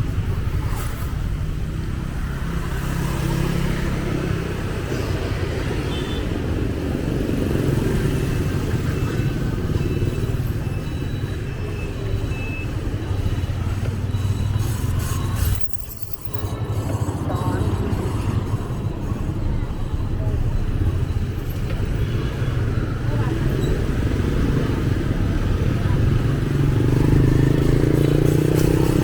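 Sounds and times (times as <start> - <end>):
traffic rumble: 0.0 - 29.0
faint voices: 8.5 - 29.0.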